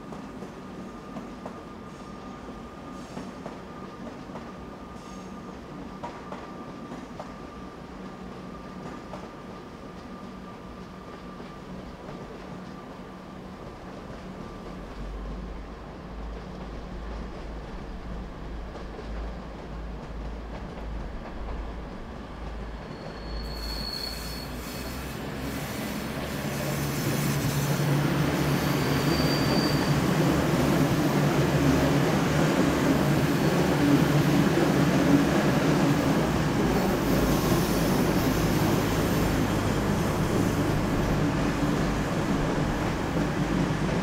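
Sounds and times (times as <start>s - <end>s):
train running past: 0.0s - 44.0s
high-pitched squeals: 28.4s - 30.2s.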